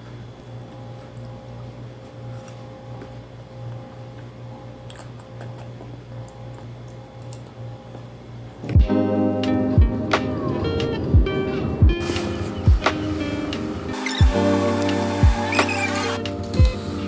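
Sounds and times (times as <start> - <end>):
light eating clicks: 3.7 - 8.1
loud music: 8.8 - 17.0.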